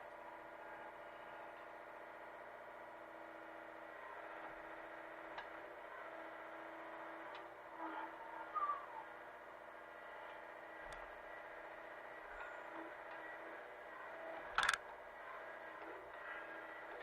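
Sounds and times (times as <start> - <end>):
excavator engine running: 0.0 - 17.0
sharp clicks: 14.6 - 14.8.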